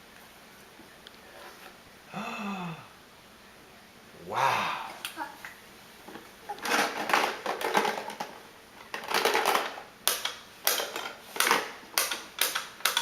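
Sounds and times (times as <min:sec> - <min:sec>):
sharp clicks and knocks: 0:06.1 - 0:13.0.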